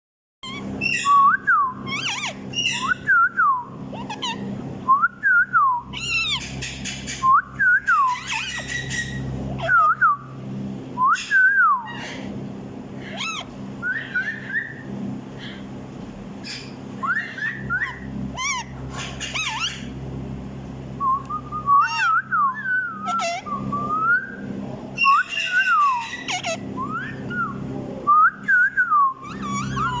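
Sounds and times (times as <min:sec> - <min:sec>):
parrot chattering calls: 0:00.4 - 0:03.1, 0:03.9 - 0:04.6, 0:05.9 - 0:07.2, 0:08.0 - 0:09.9, 0:11.2 - 0:12.3, 0:13.0 - 0:15.7, 0:16.4 - 0:20.0, 0:21.8 - 0:22.2, 0:23.0 - 0:23.5, 0:25.0 - 0:27.4, 0:29.2 - 0:30.0
parrot whistling: 0:00.4 - 0:10.2, 0:11.0 - 0:12.3, 0:13.0 - 0:14.9, 0:16.4 - 0:19.9, 0:21.0 - 0:27.6, 0:28.2 - 0:30.0.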